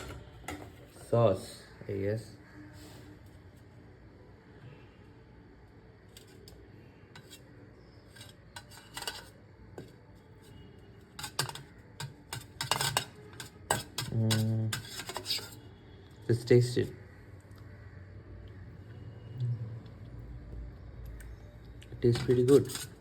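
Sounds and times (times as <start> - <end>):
metal spoon scraping in bowl: 7.2 - 15.8, 22.1 - 23.0.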